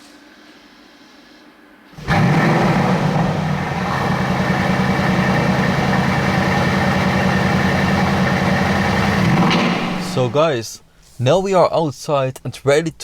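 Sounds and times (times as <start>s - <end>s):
car engine idling loudly: 2.0s - 10.4s.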